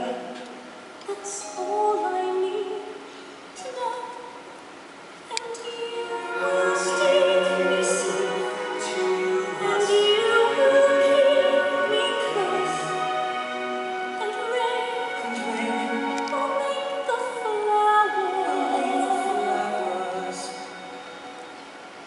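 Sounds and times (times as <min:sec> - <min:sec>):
operatic duet singing: 0:00.0 - 0:00.5, 0:05.3 - 0:21.4
orchestra strings: 0:00.0 - 0:22.0.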